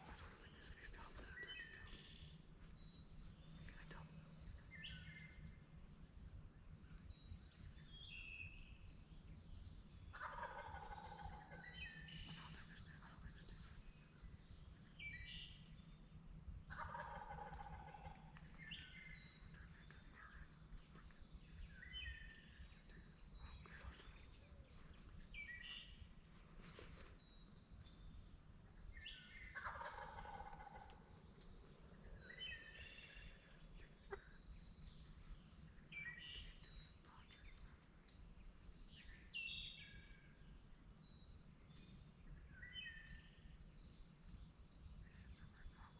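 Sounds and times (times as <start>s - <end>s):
songbirds chirping: 0.0s - 45.9s
distant wild turkey gobbling: 16.7s - 18.2s, 29.6s - 31.0s.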